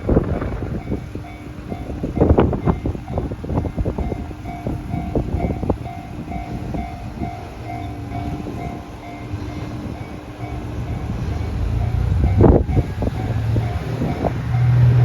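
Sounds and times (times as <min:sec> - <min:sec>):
diesel railcar engine rumble: 0:00.0 - 0:15.0.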